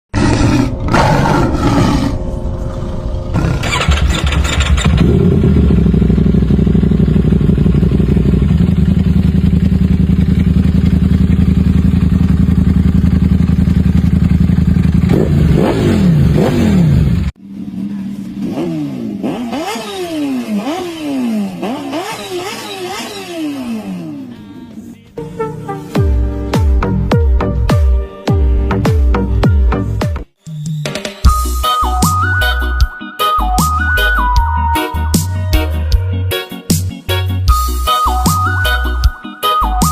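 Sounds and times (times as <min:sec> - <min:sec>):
motorcycle engine revving: 0:00.7 - 0:24.9
motorcycle engine idling: 0:03.6 - 0:15.6, 0:17.0 - 0:18.5.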